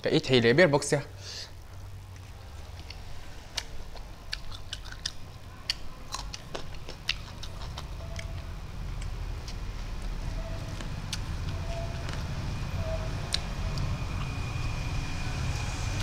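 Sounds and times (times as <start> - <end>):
low steady hum: 1.0 - 16.0
person chewing and lip smacking: 1.6 - 12.4, 13.2 - 14.3.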